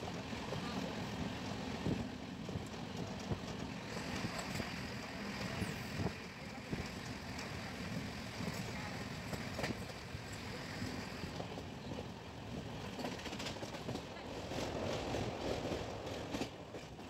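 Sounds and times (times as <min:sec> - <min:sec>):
train wheels rumbling on rails: 0:00.0 - 0:17.0
wind rushing on microphone: 0:01.7 - 0:07.0.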